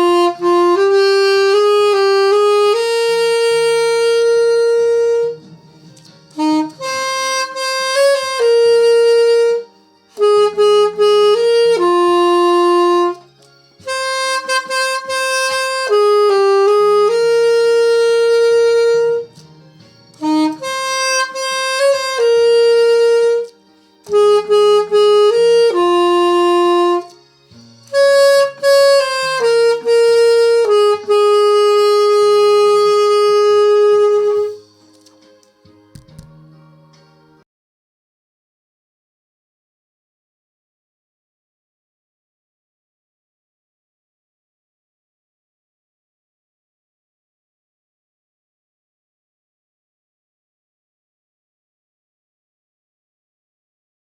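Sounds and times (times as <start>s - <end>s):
wind instrument slow melody: 0.0s - 19.4s, 20.1s - 35.2s.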